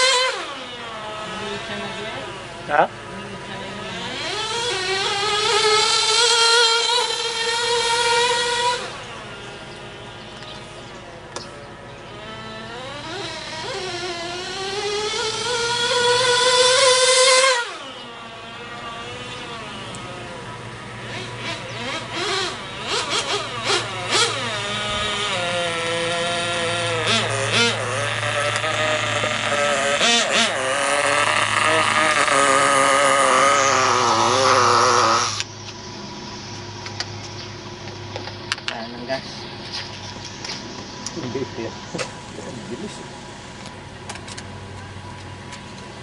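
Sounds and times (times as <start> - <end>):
small glow engine revving high: 0.0 - 35.5.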